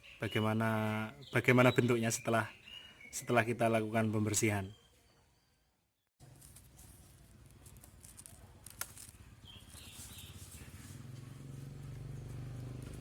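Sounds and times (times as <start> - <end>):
faint outdoor ambience: 0.0 - 13.0
low engine hum: 10.3 - 13.0.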